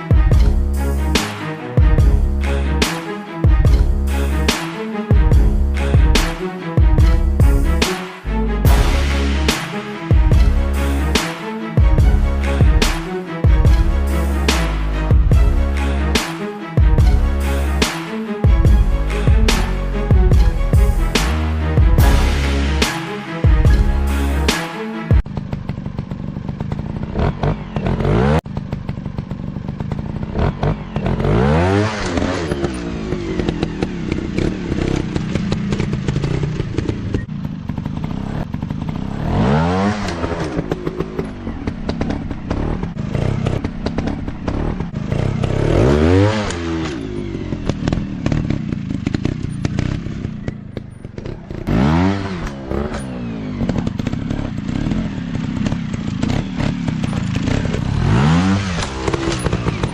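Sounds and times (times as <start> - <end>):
dirt bike engines revving: 25.3 - 59.9.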